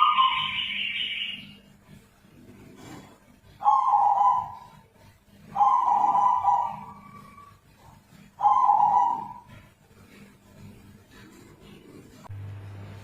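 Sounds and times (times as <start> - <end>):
dove cooing: 2.8 - 4.8, 5.4 - 7.6, 8.2 - 9.7.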